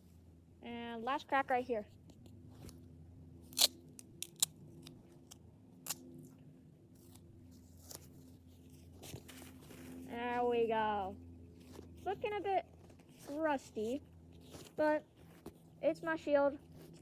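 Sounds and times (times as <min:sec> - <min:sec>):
steady low hum: 0:00.0 - 0:17.0
sharp snips and clicks: 0:03.5 - 0:06.1.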